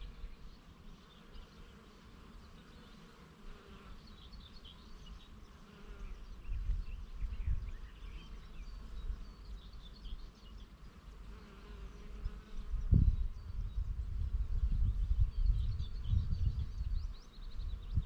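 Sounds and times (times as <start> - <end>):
bee buzzing: 0.0 - 13.4
small birds chirping: 0.0 - 18.0
wind rumbling on microphone: 6.0 - 8.2, 12.2 - 18.0.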